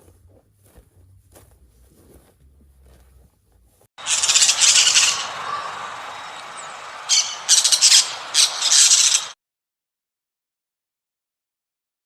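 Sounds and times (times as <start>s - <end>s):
harsh squawking animal calls: 4.0s - 9.4s.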